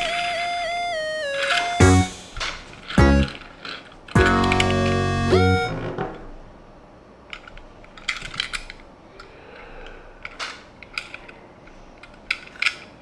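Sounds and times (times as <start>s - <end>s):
clicks of toy car handling: 7.3s - 9.3s, 10.2s - 13.0s.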